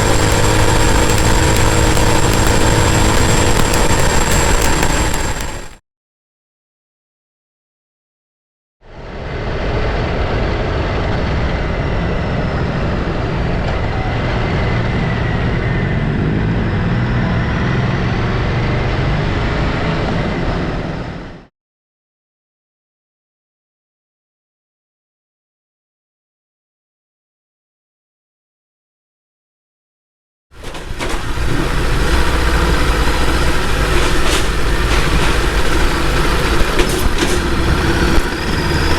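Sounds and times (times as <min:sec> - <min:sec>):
faint steady whine: 0:00.0 - 0:05.8
motorcycle engine rumble: 0:00.0 - 0:05.8, 0:30.6 - 0:38.9
wind and road rush: 0:00.0 - 0:05.8, 0:08.9 - 0:21.5, 0:30.6 - 0:38.9.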